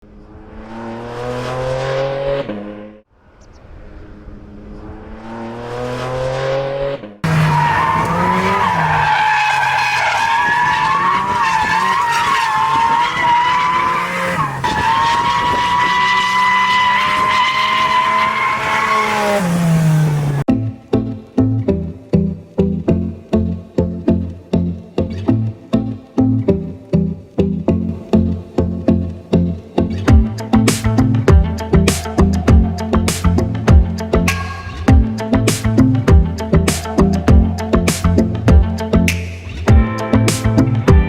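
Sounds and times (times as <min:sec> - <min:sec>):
car engine revving hard: 0:00.3 - 0:03.0, 0:04.8 - 0:20.5.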